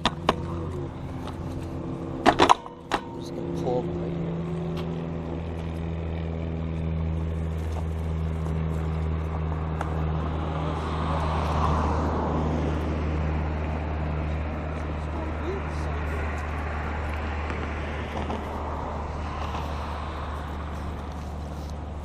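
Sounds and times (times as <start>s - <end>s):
traffic engine hum: 0.0s - 22.0s
car passing by: 7.8s - 22.0s.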